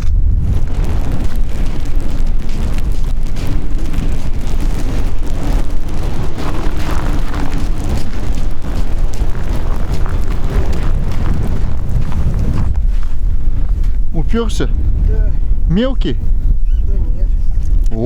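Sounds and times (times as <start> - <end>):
blizzard wind buffeting microphone: 0.0 - 18.0.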